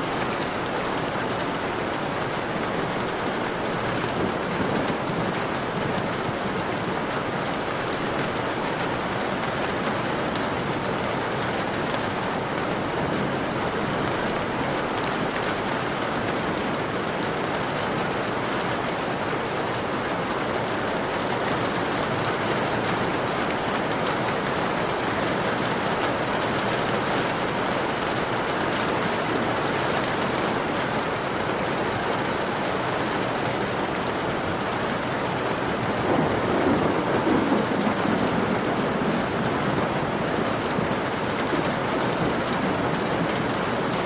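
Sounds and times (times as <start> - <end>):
rain on a window pane: 0.0 - 44.0
low rumble of thunder: 35.9 - 41.5.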